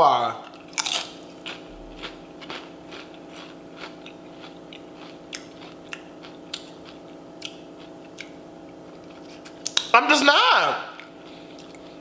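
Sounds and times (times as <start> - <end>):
steady low hum: 0.0 - 12.0
person chewing food: 0.4 - 9.9, 11.0 - 12.0
wet mouth clicks and smacks: 7.4 - 8.4.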